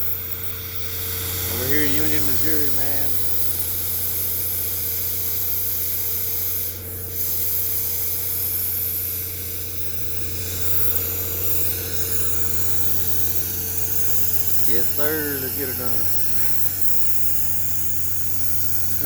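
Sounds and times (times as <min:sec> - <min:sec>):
industrial machinery drone: 0:00.0 - 0:03.6, 0:09.4 - 0:19.0.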